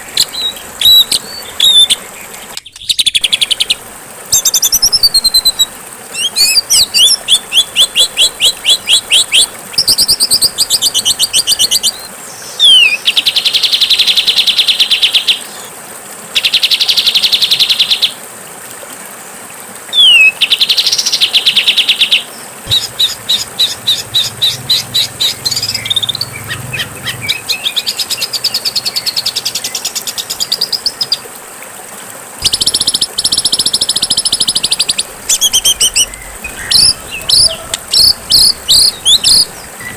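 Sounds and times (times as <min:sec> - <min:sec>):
songbird trills and chattering: 0:00.0 - 0:03.8, 0:22.7 - 0:31.2, 0:32.4 - 0:39.9.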